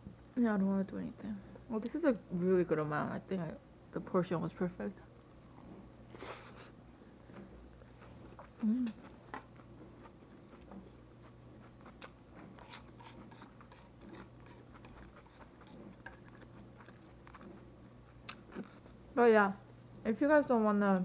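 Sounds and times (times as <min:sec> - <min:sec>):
person chewing food: 0:05.5 - 0:19.1.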